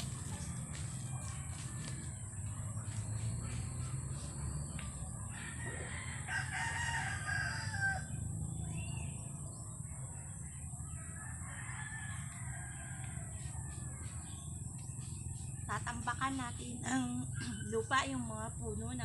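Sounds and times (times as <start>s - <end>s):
rooster crowing: 0.1s - 2.7s, 5.1s - 8.3s, 10.8s - 14.4s.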